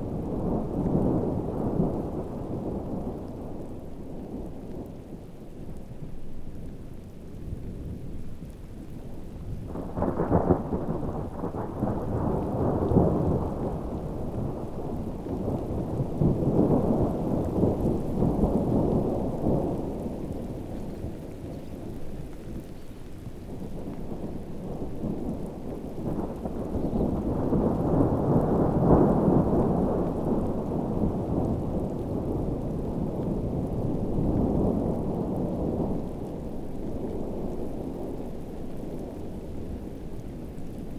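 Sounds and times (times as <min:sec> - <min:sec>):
heavy rain falling: 0:00.0 - 0:40.9
rolling thunder rumble: 0:09.5 - 0:22.0, 0:23.6 - 0:39.2.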